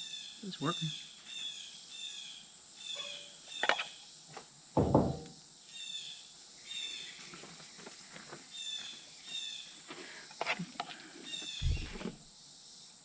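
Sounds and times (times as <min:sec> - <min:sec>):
birds chirping: 0:00.0 - 0:04.0, 0:11.2 - 0:12.3
dull thud: 0:04.8 - 0:05.4, 0:11.6 - 0:12.3.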